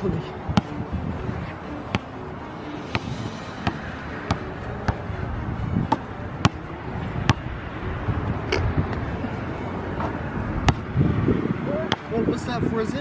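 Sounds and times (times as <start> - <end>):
wind on microphone: 0.0 - 13.0
basketball bouncing: 0.5 - 0.7, 2.9 - 5.0, 5.9 - 6.7, 10.6 - 10.9.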